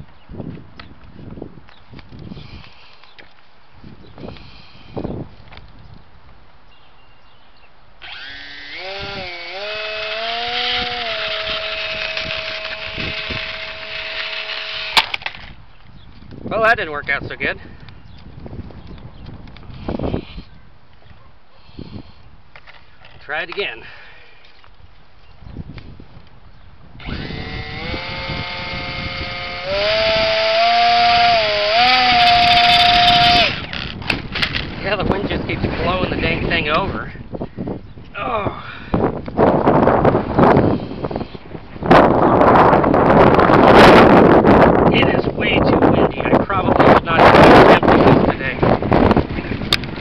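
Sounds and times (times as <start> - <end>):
electric motor and propeller whine: 8.0 - 15.6, 27.0 - 37.0.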